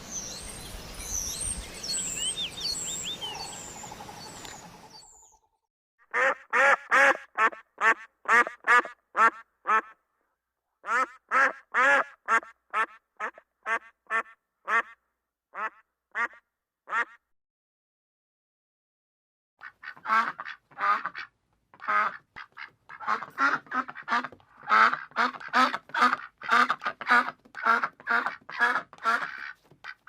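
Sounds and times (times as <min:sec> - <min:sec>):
duck quacking: 0:06.1 - 0:10.0, 0:10.8 - 0:17.2, 0:19.6 - 0:30.0.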